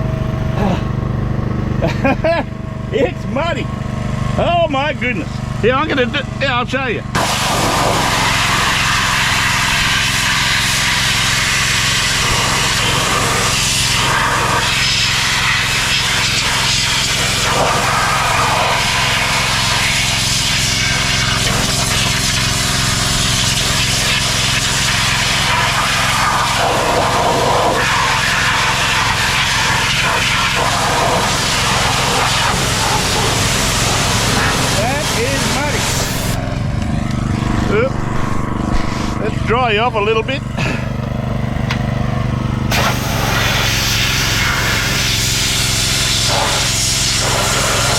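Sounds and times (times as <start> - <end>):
pressure washer engine running: 0.0 - 47.9
water jet hissing on mud: 7.2 - 36.4, 42.7 - 47.9.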